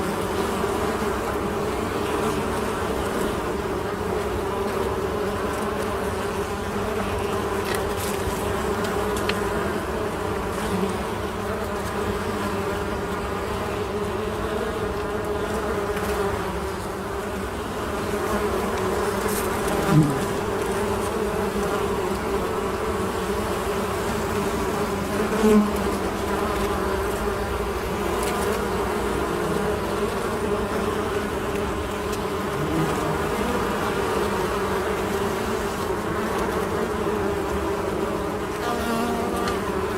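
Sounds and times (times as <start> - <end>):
honey bees buzzing: 0.0 - 39.9
loud bee buzz falling in pitch: 0.0 - 39.9.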